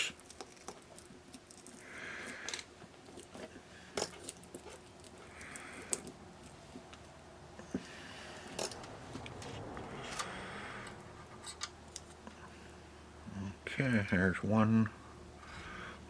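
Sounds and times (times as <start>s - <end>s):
soft breath: 7.6s - 8.6s, 9.6s - 11.2s, 15.0s - 16.0s.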